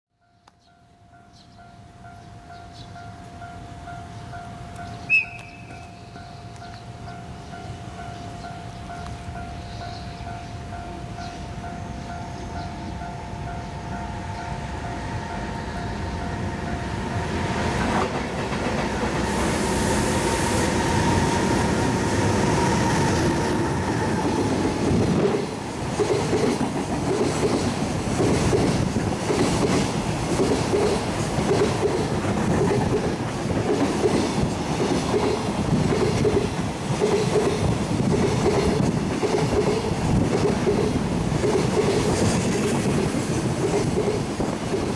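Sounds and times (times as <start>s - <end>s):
freight train rumble: 1.7s - 44.9s
wheels clickety-clack on rail joints: 12.4s - 44.9s.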